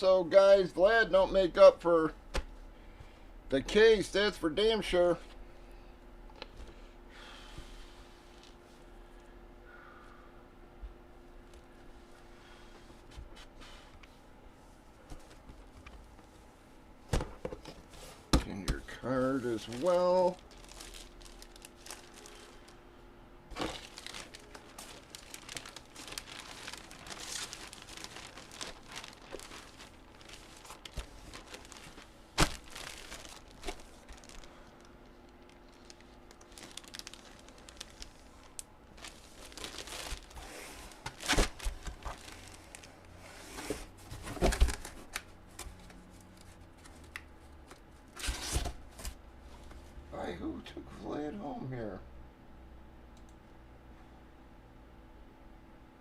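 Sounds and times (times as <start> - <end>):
packaging crinkling and tearing: 19.3 - 22.8, 23.5 - 43.0.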